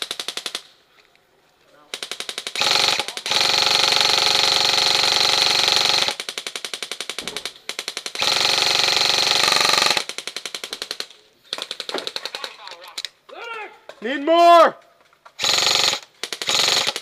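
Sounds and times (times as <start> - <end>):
airsoft guns firing full-auto: 0.0 - 0.7, 1.9 - 12.6, 15.4 - 17.0.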